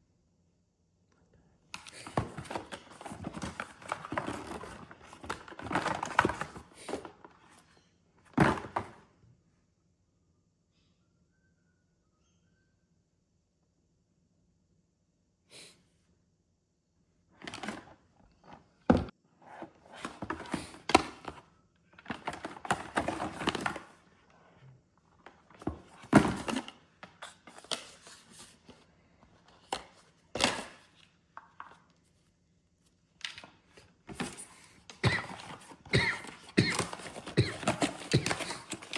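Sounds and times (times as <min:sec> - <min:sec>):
knocks and thuds of handling: 0:08.3 - 0:09.0
packaging rustling: 0:34.1 - 0:38.9.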